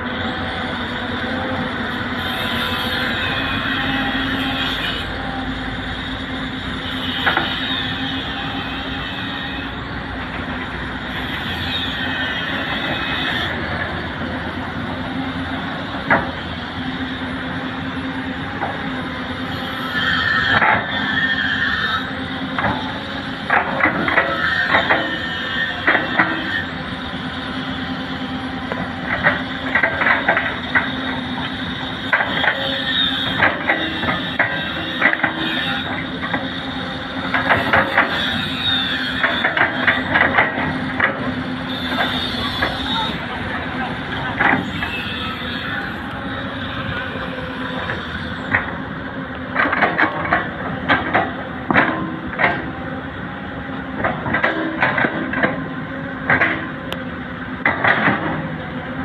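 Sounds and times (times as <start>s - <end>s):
heavy diesel machinery running: 0.0s - 59.0s
metal clanks and knocks: 22.5s - 25.2s, 32.1s - 36.4s, 37.2s - 43.1s, 49.5s - 52.8s, 54.0s - 55.6s, 56.3s - 56.8s, 57.6s - 58.5s.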